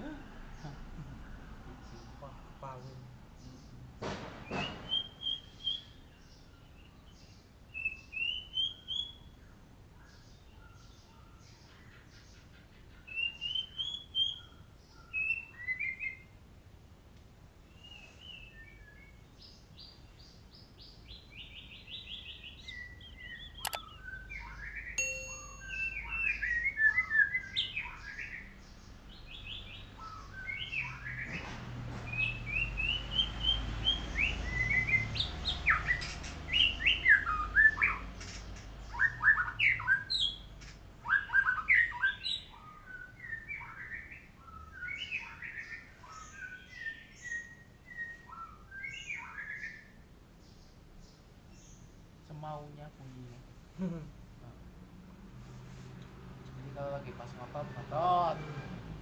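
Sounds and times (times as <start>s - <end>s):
sharp click: 23.6s - 23.8s.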